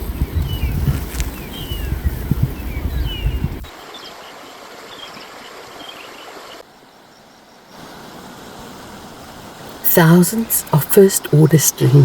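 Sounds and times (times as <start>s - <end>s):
birds chirping: 0.0s - 7.6s
outdoor hiss: 3.7s - 12.0s.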